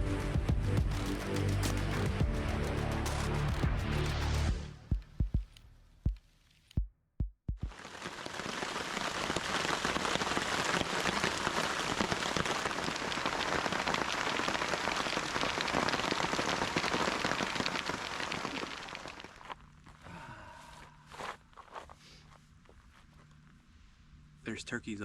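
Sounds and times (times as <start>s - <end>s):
steady rain patter: 7.7s - 19.6s.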